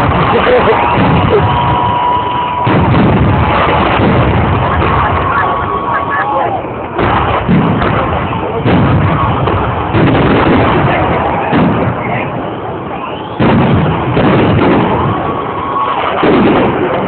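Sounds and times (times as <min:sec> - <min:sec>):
fireworks booming: 0:00.0 - 0:17.0
rumbling and crackle: 0:00.0 - 0:17.0
faint whistling glides: 0:12.5 - 0:13.4.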